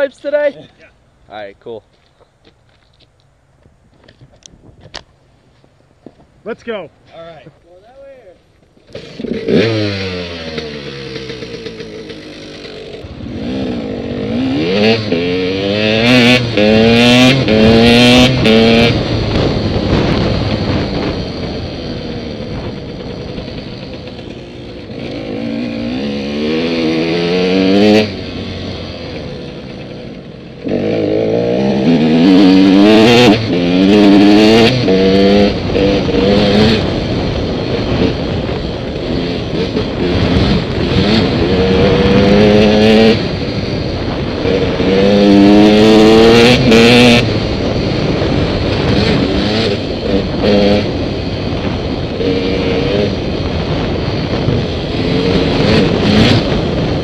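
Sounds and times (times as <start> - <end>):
dirt bike engines revving: 0.0 - 3.1, 3.9 - 57.0.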